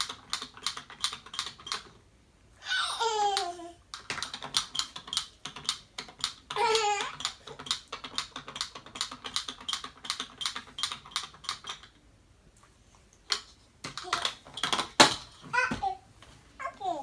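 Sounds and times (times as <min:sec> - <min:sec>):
child's voice: 0:02.6 - 0:03.8, 0:06.6 - 0:07.2, 0:14.0 - 0:14.4, 0:15.5 - 0:17.0.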